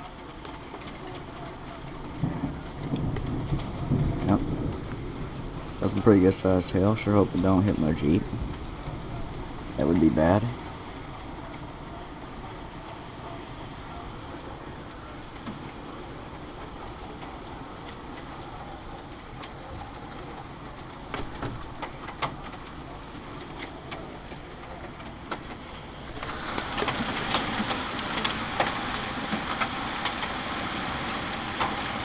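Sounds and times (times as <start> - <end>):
rain and hail falling: 0.0 - 32.0.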